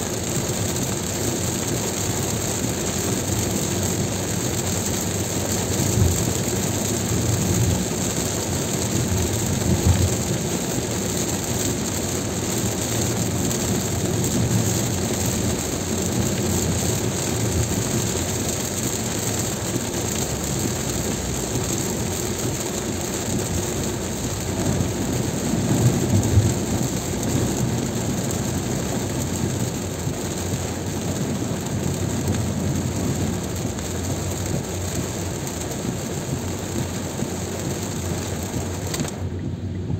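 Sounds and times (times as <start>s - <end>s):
rain: 0.0s - 39.9s
tyre noise on wet road: 0.0s - 39.9s.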